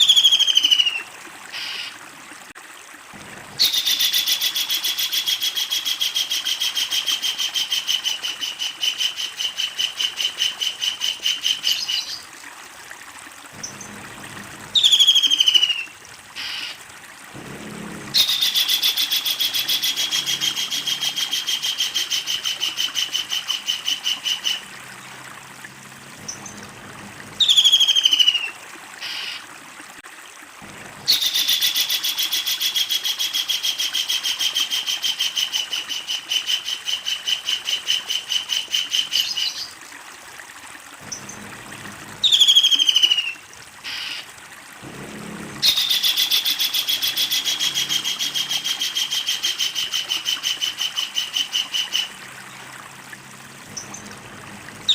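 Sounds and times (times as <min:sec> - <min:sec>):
kingfisher rattling call: 0:18.1 - 0:24.6, 0:42.2 - 0:44.3, 0:45.6 - 0:52.2.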